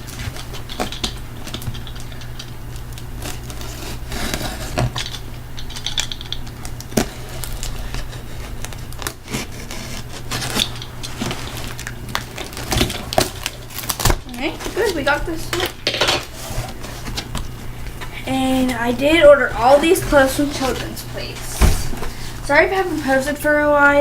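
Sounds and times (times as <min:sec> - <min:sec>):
package crinkling and tearing: 0:00.0 - 0:17.9.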